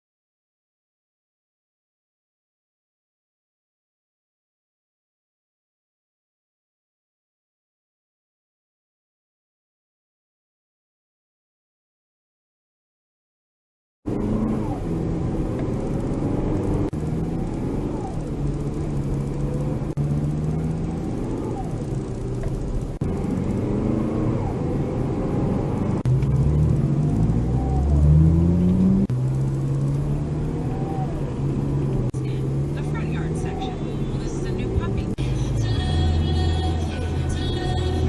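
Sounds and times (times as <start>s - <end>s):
car engine droning: 14.1s - 38.0s
faint rising and falling tone: 14.1s - 38.0s.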